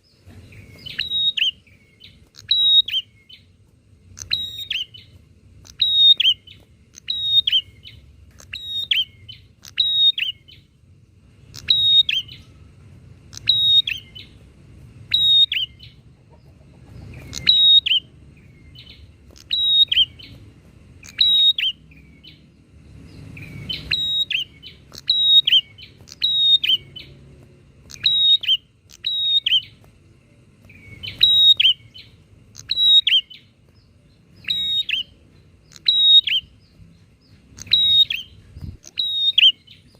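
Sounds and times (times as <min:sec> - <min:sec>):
bird chirps dropping in pitch: 0:00.0 - 0:03.5, 0:04.2 - 0:10.7, 0:11.5 - 0:12.5, 0:13.3 - 0:14.4, 0:17.2 - 0:20.4, 0:21.0 - 0:22.4, 0:23.2 - 0:27.2, 0:27.9 - 0:29.8, 0:30.7 - 0:33.5, 0:34.3 - 0:39.9
faint low hum: 0:00.0 - 0:39.9.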